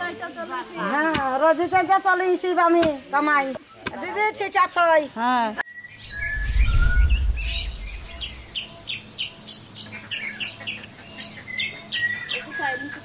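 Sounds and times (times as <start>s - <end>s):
low rumble: 6.1s - 8.8s
small birds chirping: 7.4s - 13.0s.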